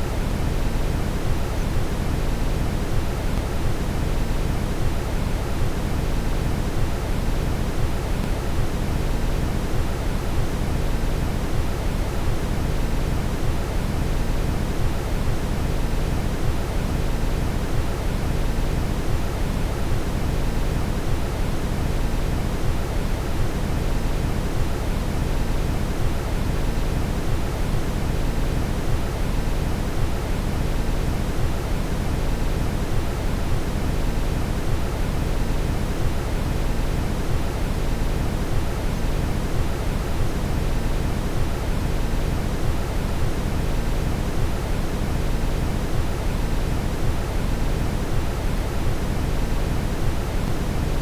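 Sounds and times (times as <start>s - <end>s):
brown noise rumbling hiss: 0.0s - 51.0s.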